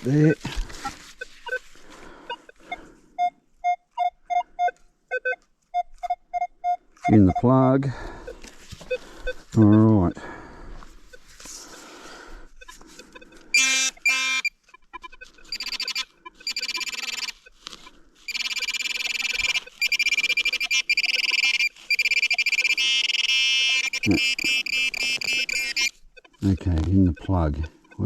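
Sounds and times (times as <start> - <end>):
metal detector pulsing tone: 12.6 - 17.6, 18.3 - 28.0.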